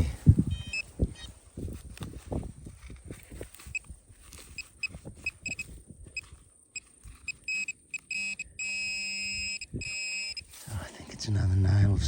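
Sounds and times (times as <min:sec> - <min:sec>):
metal detector beeping: 0:00.5 - 0:01.3, 0:03.6 - 0:10.6.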